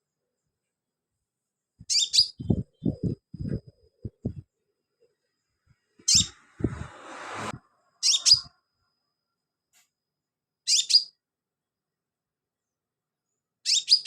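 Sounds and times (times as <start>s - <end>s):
bird chirping: 1.8s - 6.6s, 7.9s - 8.6s, 10.6s - 11.3s, 12.6s - 14.0s.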